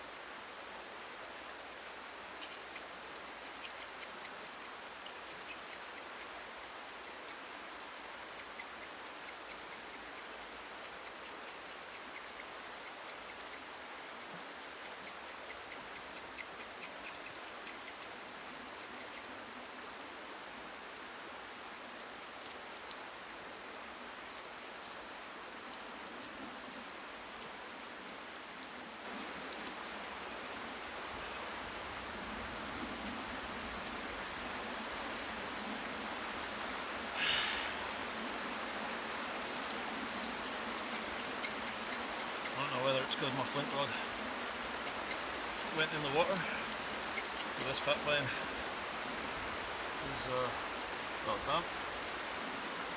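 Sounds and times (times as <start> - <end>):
faint ticks and scrapes: 2.0 - 19.5, 21.4 - 23.4, 24.2 - 29.9, 32.8 - 34.2, 39.5 - 48.6
rushing water: 33.2 - 52.9.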